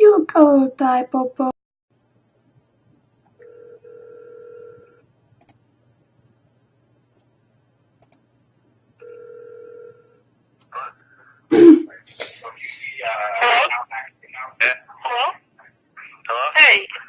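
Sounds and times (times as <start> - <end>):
telephone ringback tone: 3.4 - 5.0, 9.0 - 10.2
faint clicks: 5.4 - 5.6, 8.0 - 8.2.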